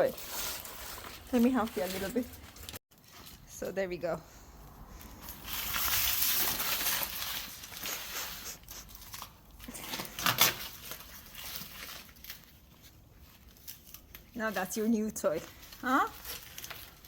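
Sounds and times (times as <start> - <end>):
leaf crackling and tearing: 5.0 - 17.0.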